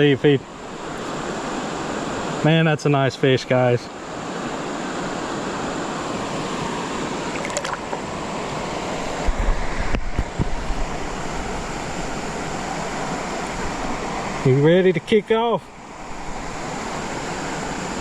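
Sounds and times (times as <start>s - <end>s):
creek water rushing: 0.0s - 18.0s
low thumps on microphone: 9.2s - 10.9s.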